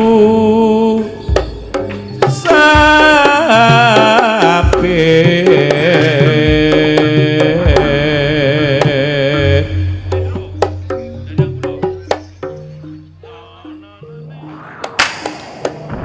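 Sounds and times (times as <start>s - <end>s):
ornamented melody line: 5.6s - 16.0s.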